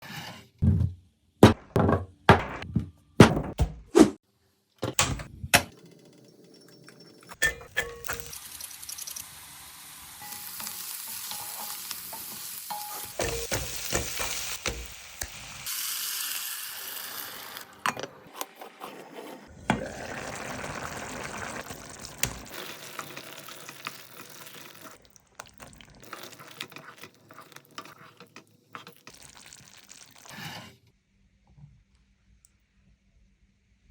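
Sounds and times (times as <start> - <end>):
food sizzling in a pan: 7.7 - 17.8, 19.7 - 30.7
utensil clicking and scraping: 26.0 - 29.1.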